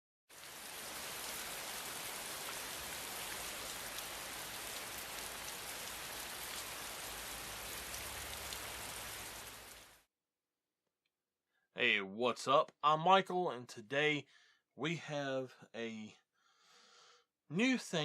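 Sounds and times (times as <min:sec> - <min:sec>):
steady hiss like rain: 0:00.3 - 0:10.1.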